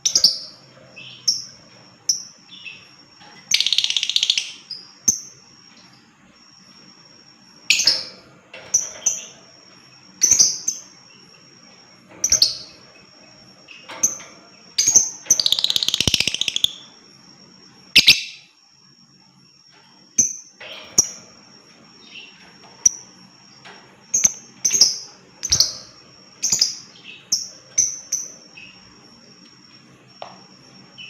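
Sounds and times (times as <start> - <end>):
lovebird chirping: 3.5 - 5.3, 14.8 - 17.0, 17.9 - 18.6, 24.2 - 28.8.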